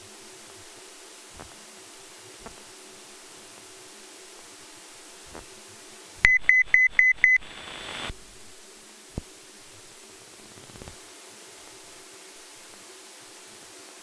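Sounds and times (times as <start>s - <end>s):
radio hiss: 0.0s - 12.8s
short electronic beeps: 6.2s - 8.0s.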